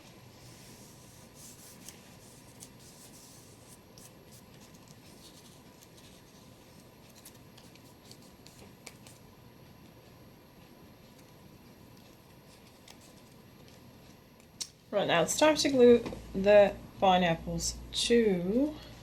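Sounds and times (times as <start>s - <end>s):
paper rubbing and rustling: 0.0s - 9.2s, 12.0s - 13.8s.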